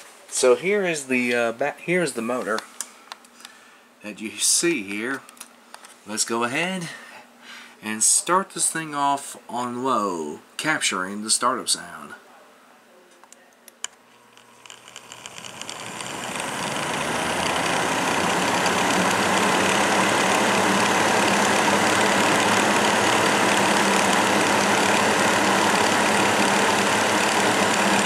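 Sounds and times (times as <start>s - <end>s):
box fan motor humming: 14.2s - 28.0s
fan air rushing: 14.4s - 28.0s.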